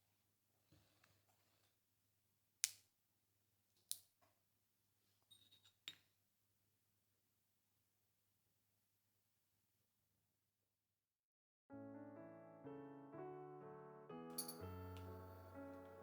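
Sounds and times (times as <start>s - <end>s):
utensils and tableware clicking: 14.4s - 15.1s.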